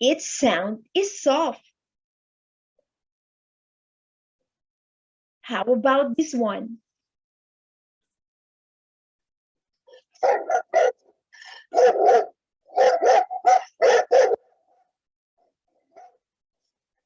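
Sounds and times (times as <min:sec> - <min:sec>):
dog barking loudly: 0:10.2 - 0:11.1, 0:11.7 - 0:14.5.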